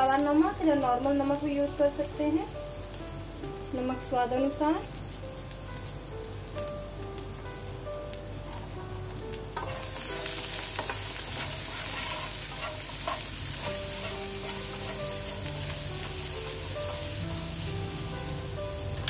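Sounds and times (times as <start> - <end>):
chickpeas sizzling in oil: 0.0 - 19.0
wooden spatula scraping a pan: 10.2 - 17.1.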